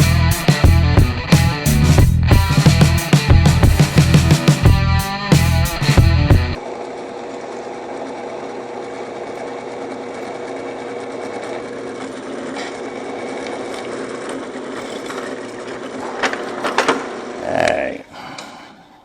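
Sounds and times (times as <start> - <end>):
power tool whining: 5.8 - 17.5.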